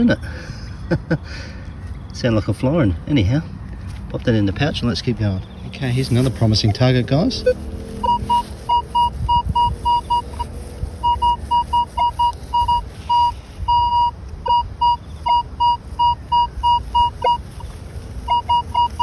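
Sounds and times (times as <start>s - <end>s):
metal detector beeping: 6.2s - 19.0s.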